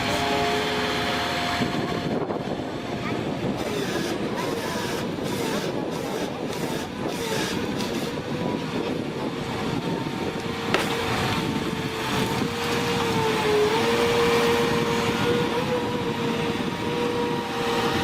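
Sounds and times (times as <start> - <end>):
engine rumble: 0.0 - 18.0
machinery whine: 0.0 - 18.0
sharp mechanical knock: 10.7 - 11.0.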